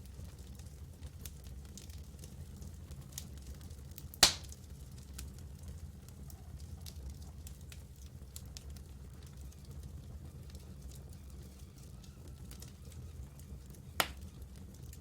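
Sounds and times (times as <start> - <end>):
campfire crackling: 0.0 - 15.0
sharp loud fire pop: 4.2 - 4.5.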